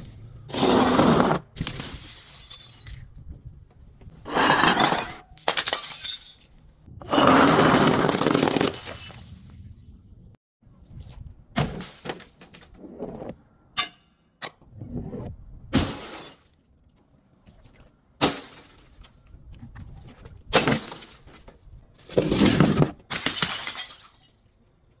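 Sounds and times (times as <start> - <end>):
glass smashing: 1.6 - 3.1, 4.7 - 6.9, 8.3 - 9.5, 15.8 - 16.7, 23.1 - 24.4.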